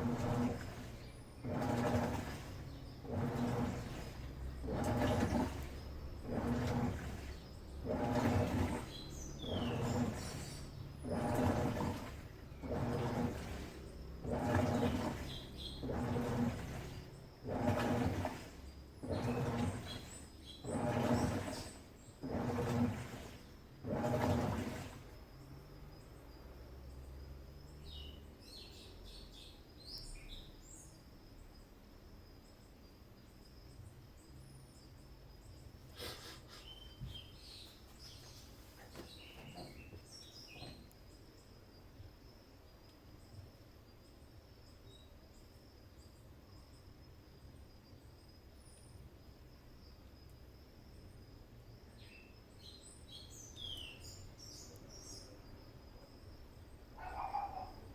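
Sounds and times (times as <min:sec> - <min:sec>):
birds chirping: 0:00.0 - 0:23.6, 0:34.8 - 0:41.5, 0:52.0 - 0:55.6, 0:56.4 - 0:57.9
washing machine humming: 0:00.0 - 0:30.6, 0:33.7 - 0:42.6, 0:50.0 - 0:57.9.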